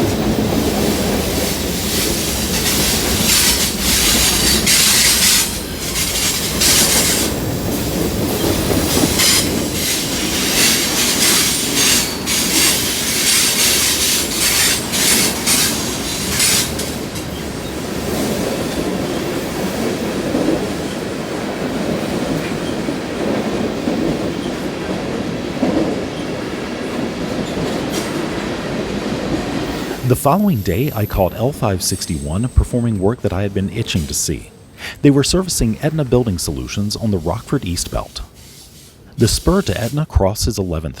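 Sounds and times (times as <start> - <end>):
train wheels clattering over rail joints: 0.0 - 28.6.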